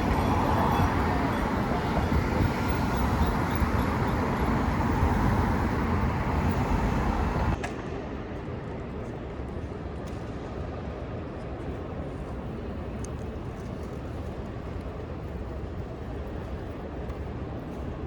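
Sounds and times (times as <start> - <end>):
passing vehicles rumbling: 0.0 - 7.6.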